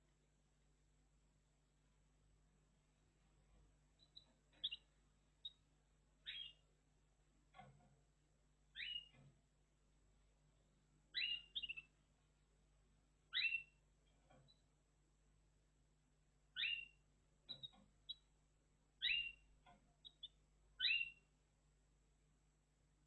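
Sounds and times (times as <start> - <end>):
canary high chirps: 4.0 - 6.7, 8.7 - 9.3, 11.1 - 12.0, 13.3 - 14.7, 16.5 - 18.3, 19.0 - 21.3.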